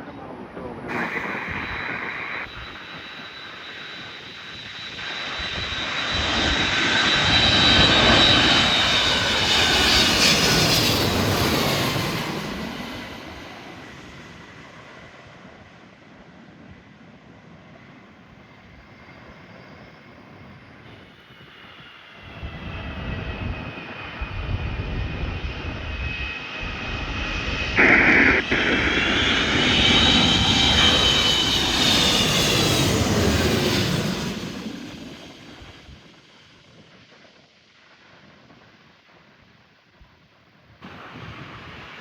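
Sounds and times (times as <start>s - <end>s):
jet airliner passing: 0.0s - 39.1s, 40.8s - 42.0s
loud rush: 0.9s - 3.0s.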